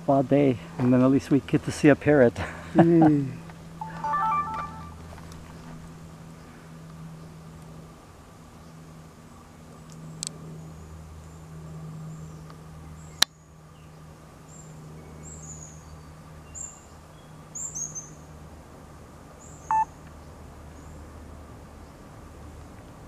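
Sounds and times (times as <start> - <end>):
bird chirping high notes: 3.8 - 5.2.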